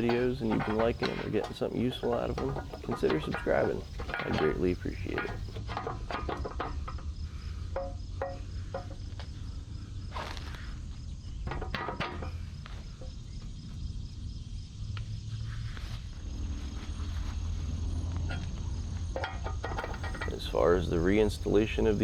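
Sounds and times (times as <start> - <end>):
knocks and handling noises: 0.0 - 9.4, 11.4 - 13.0, 18.2 - 22.0
steady low hum: 0.0 - 13.6
insects chirping: 0.0 - 22.0.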